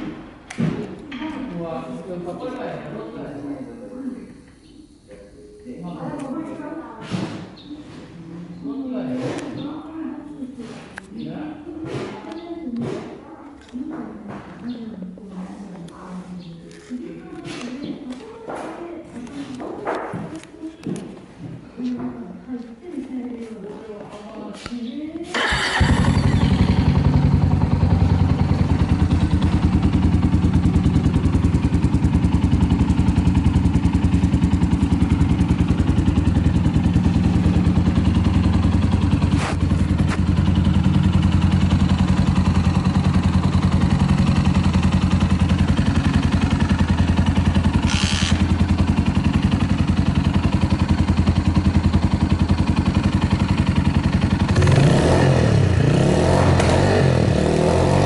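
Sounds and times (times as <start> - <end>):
motorcycle engine idling: 25.3 - 58.0.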